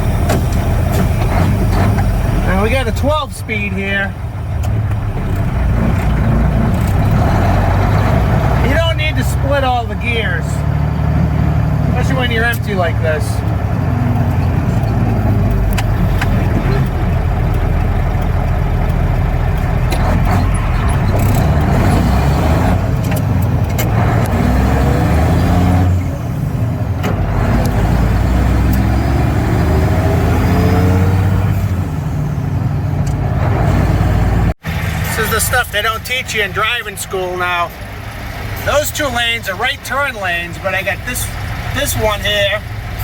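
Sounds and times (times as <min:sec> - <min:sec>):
diesel truck engine revving: 0:00.0 - 0:43.0.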